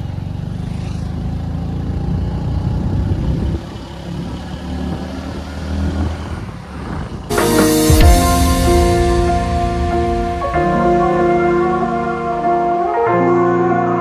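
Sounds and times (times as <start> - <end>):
motorcycle engine running: 0.0 - 5.4
road and wind noise: 0.0 - 7.4
background music: 7.3 - 14.0.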